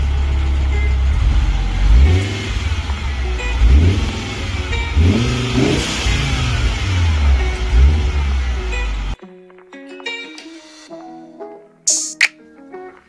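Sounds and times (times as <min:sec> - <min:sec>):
car engine revving: 0:00.0 - 0:09.2.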